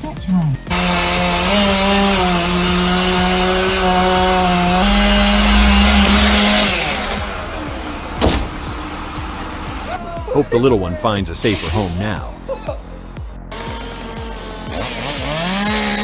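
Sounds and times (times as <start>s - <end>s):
chainsaw running at high revs: 0.6s - 8.2s, 13.5s - 16.0s.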